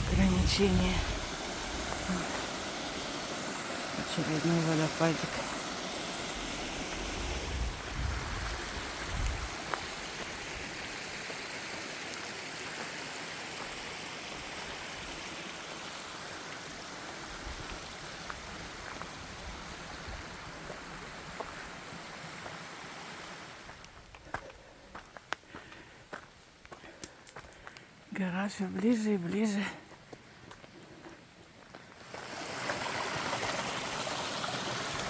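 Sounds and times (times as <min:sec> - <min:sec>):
waterfall rushing water: 0:00.0 - 0:23.6, 0:32.0 - 0:35.0.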